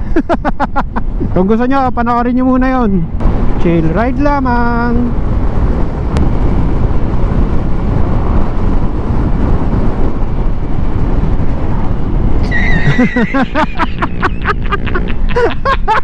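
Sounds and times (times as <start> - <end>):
wind buffeting microphone: 0.0 - 16.0
scooter road noise: 4.9 - 16.0.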